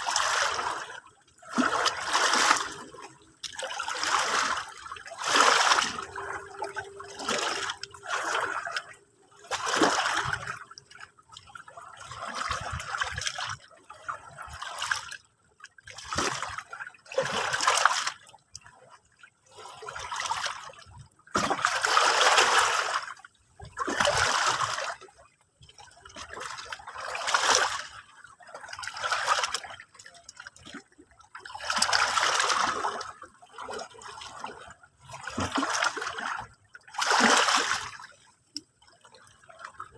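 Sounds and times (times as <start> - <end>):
small sea waves washing in: 0.0 - 15.2.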